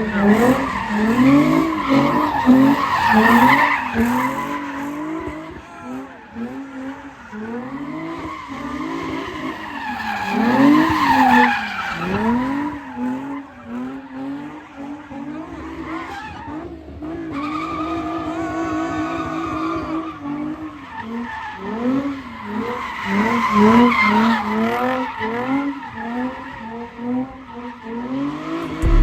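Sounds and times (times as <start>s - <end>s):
car engine revving: 28.6s - 29.0s.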